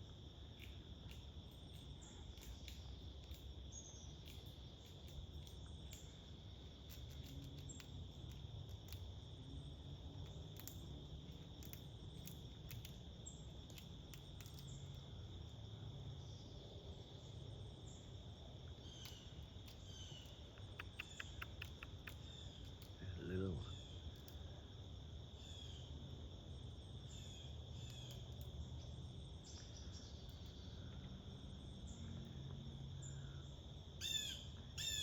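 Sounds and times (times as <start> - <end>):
insect chorus trilling: 0.0 - 35.0
light ticks: 19.0 - 23.0.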